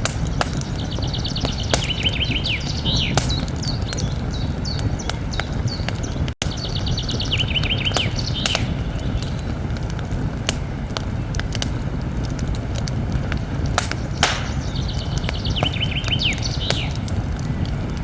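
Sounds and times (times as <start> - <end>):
bird chirps: 0.0 - 9.5, 13.9 - 17.0
campfire crackling and popping: 0.0 - 18.0
songbird trilling: 0.3 - 9.3, 13.9 - 17.0.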